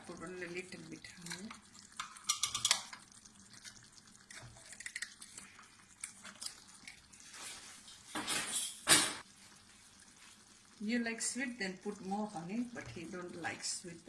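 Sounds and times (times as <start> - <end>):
faint liquid sounds: 0.0 - 8.2, 9.2 - 14.0.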